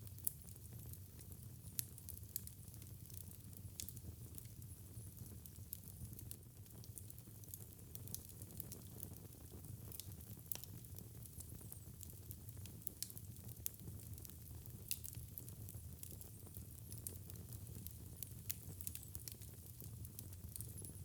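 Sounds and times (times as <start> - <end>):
low rumble of flames: 0.0 - 21.0
wood fire crackling and popping: 0.1 - 21.0.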